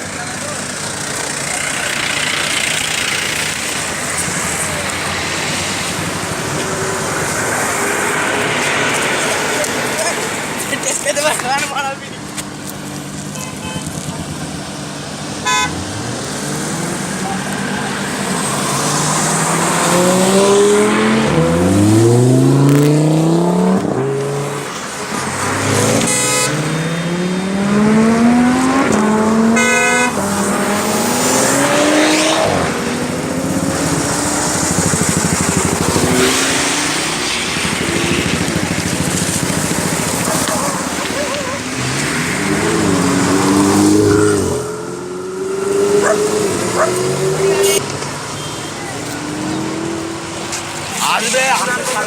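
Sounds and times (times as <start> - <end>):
car engines accelerating hard: 0.0 - 52.0
short horn toots: 15.4 - 15.8, 25.9 - 26.8, 29.6 - 30.2.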